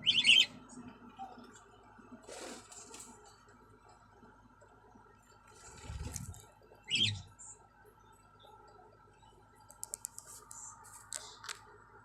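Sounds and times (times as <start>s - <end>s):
lovebird chirp: 0.0s - 0.6s, 6.8s - 7.5s.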